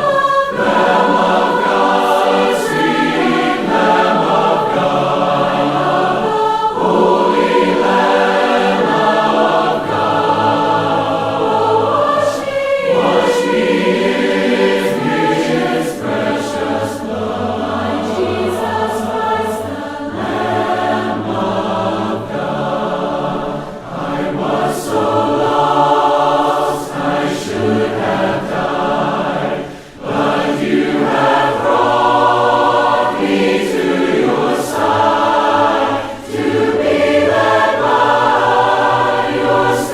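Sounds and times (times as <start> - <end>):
choir singing a hymn: 0.0 - 39.9
singers breathing: 23.4 - 23.9, 29.5 - 30.1, 35.9 - 36.3.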